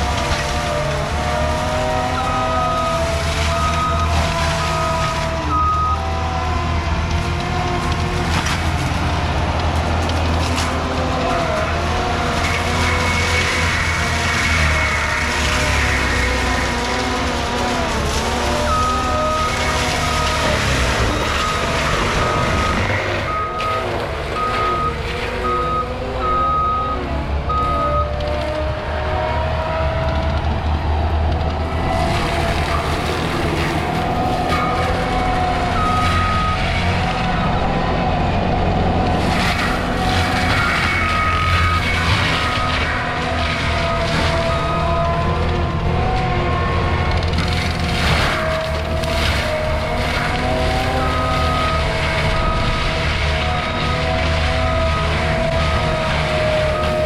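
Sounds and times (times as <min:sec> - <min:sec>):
skid steer engine hum: 0:00.0 - 0:57.0
reversing alarm beeping: 0:00.5 - 0:06.2, 0:18.5 - 0:29.0, 0:31.6 - 0:45.7, 0:50.4 - 0:57.0
backup alarm beeping: 0:21.1 - 0:28.1.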